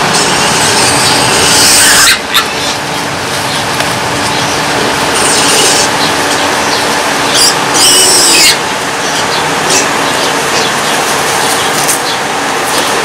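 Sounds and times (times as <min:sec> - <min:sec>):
piglets squealing: 0:01.4 - 0:02.8, 0:07.3 - 0:10.7.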